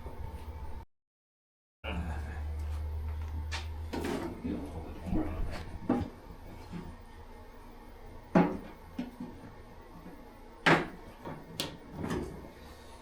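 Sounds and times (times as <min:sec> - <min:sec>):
items knocking on workbench: 0:08.3 - 0:09.4, 0:10.6 - 0:12.4.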